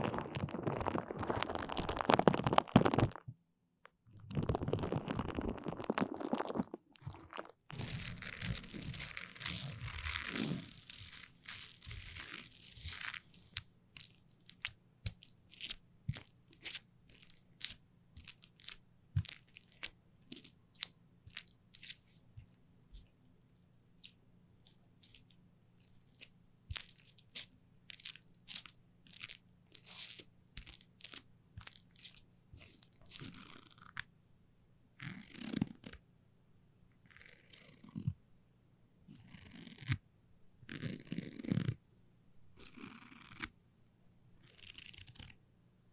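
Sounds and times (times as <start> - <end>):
rustling: 4.3 - 14.6.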